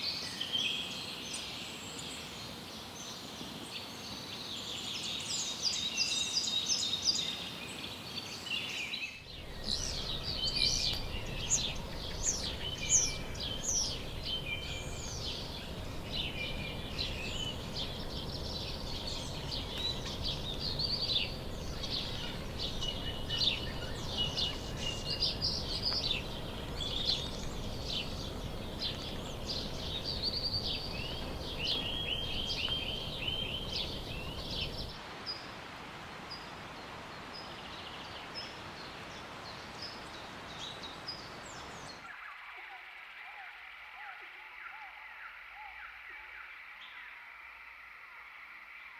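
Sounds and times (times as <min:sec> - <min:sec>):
steady background hiss: 0:00.0 - 0:48.9
birds calling and chirping: 0:08.3 - 0:35.0
bird trill: 0:09.4 - 0:35.0.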